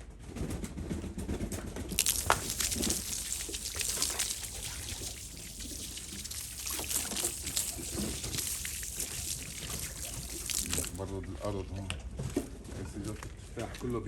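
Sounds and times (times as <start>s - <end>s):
water trickling and pouring: 1.9s - 11.4s
small water splashes: 1.9s - 11.5s.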